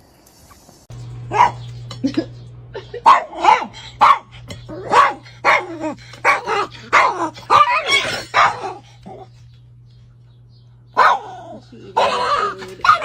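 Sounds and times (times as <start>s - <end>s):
dog barking: 1.3s - 1.7s, 3.0s - 8.8s, 11.0s - 13.0s.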